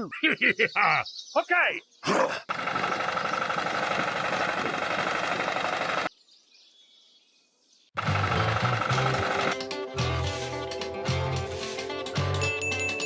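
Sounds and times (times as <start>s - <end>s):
small motor whining: 2.5s - 6.1s, 8.0s - 10.7s.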